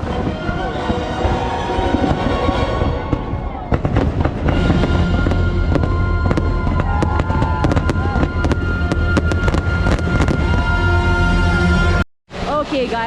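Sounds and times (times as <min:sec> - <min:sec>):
firework bangs and cracks: 0:00.0 - 0:10.8
music with long held tone: 0:00.0 - 0:12.5.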